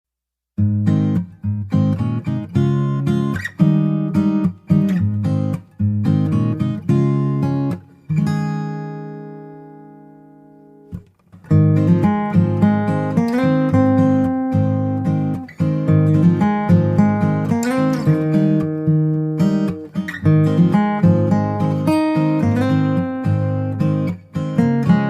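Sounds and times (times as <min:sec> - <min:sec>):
acoustic guitar strumming: 0:00.6 - 0:25.0.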